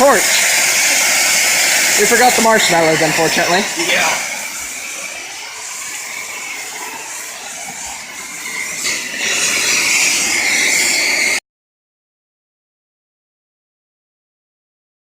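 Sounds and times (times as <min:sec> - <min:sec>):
gas torch flame hissing: 0:00.0 - 0:11.4.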